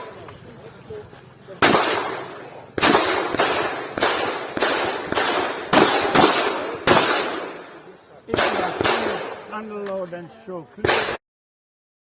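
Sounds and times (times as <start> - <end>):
shotgun shots with echo: 1.6 - 9.5, 10.8 - 11.2.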